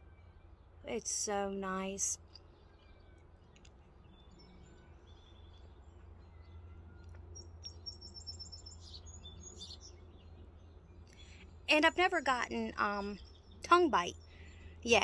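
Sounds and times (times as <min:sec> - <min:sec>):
low steady rumble: 0:00.0 - 0:15.0
small birds chirping: 0:00.2 - 0:15.0.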